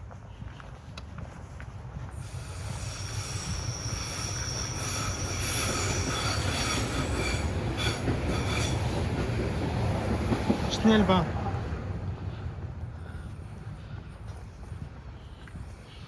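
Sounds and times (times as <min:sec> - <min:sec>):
train rumble: 0:00.0 - 0:16.0
train wheels squealing on rails: 0:02.0 - 0:09.6, 0:12.2 - 0:16.0.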